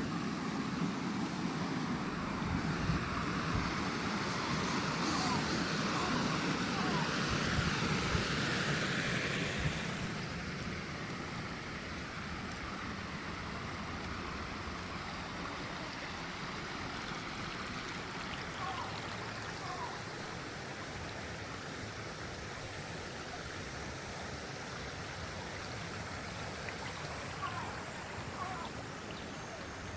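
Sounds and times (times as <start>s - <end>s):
river water rushing: 0.0s - 29.9s.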